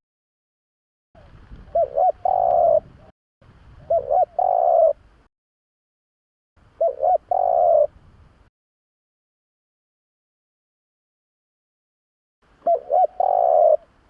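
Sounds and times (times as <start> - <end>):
dove cooing: 1.7 - 2.9, 3.9 - 5.0, 6.8 - 7.9, 12.6 - 14.0.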